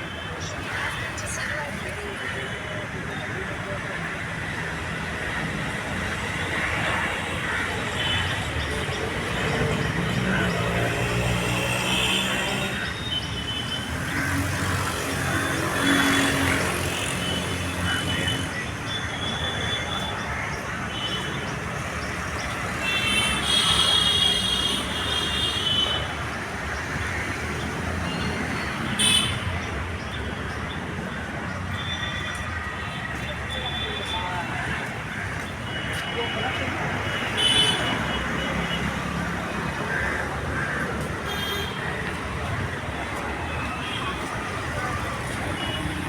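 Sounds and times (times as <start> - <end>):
road traffic: 0.0 - 46.0
vehicle horns honking: 28.9 - 29.5.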